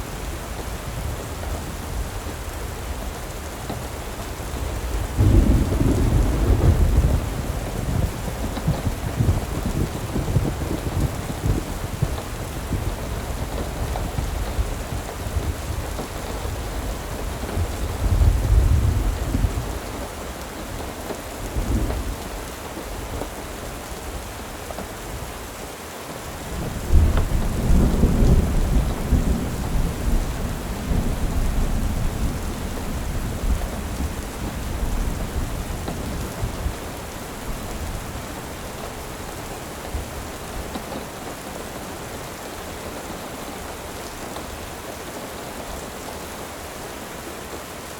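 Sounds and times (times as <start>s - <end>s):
steady rain: 0.0s - 47.9s
thunder rolling: 4.6s - 14.7s, 26.6s - 41.2s.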